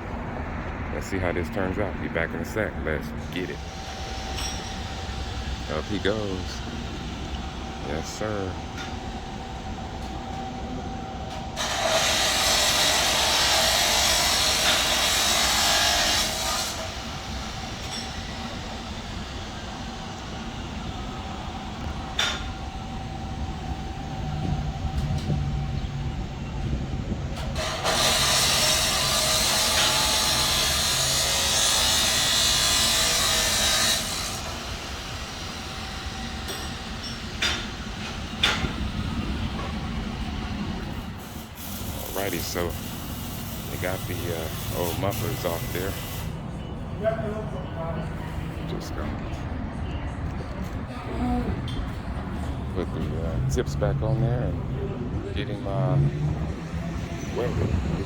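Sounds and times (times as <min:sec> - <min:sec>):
power tool cutting metal pipe: 0:11.6 - 0:20.3, 0:27.6 - 0:38.6, 0:41.2 - 0:46.3, 0:55.8 - 0:58.0.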